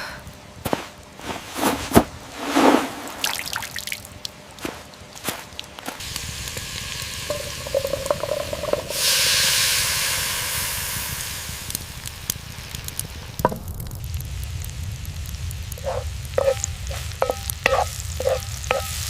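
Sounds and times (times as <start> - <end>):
food sizzling in a hot pan: 6.0 - 19.0
small knocks: 13.4 - 13.7.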